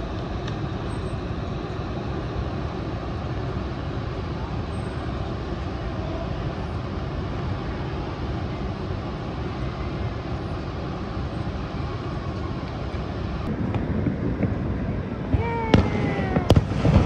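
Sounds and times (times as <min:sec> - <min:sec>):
fireworks bangs: 0:13.5 - 0:17.0.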